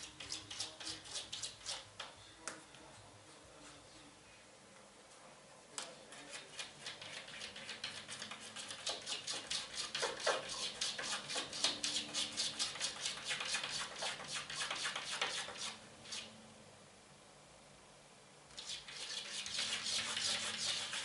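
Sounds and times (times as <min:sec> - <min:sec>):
cat claws scratching on glass: 0:00.0 - 0:02.1, 0:06.1 - 0:16.4, 0:18.5 - 0:21.0.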